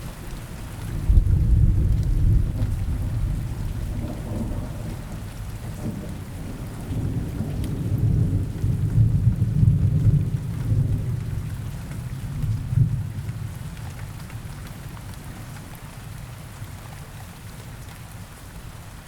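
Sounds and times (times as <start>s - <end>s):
rain falling in forest: 0.0s - 19.0s
low rolling thunder: 0.9s - 13.6s.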